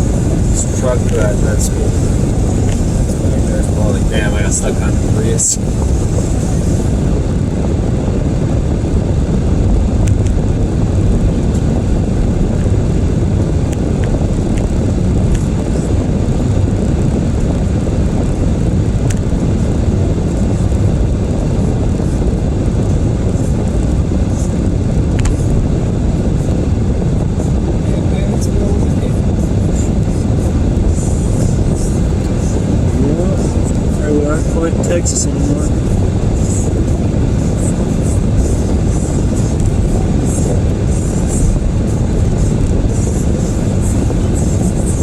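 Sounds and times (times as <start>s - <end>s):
road and tyre noise in car: 0.0s - 45.0s.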